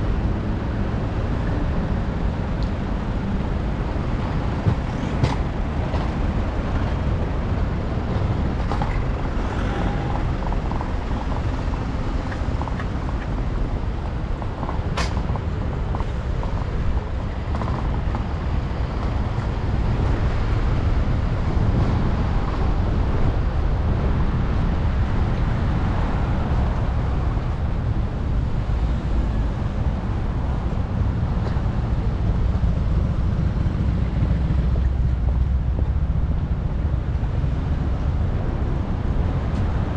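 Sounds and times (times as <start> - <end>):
city traffic noise: 0.0 - 39.9
wind on microphone: 0.0 - 39.9.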